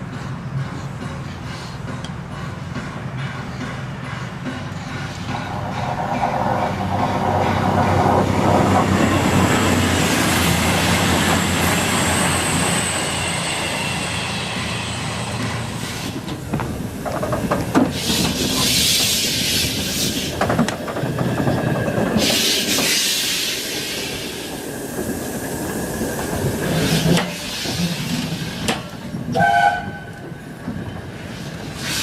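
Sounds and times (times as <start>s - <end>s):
train rumbling on rails: 0.0s - 32.0s
high squeal: 11.4s - 16.1s
wheels clicking over rail joints: 16.0s - 22.9s
hissing steam burst: 22.2s - 28.7s.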